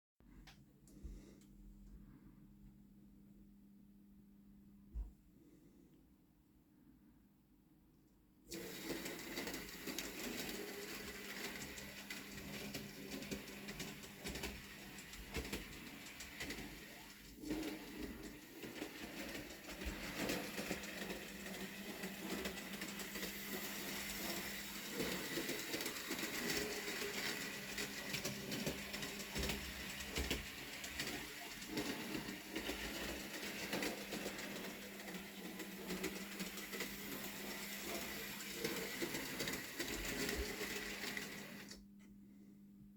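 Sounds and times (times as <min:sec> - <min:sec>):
wheels clicking on rails: 0:08.5 - 0:41.8
small electric motor whirring: 0:17.6 - 0:41.4.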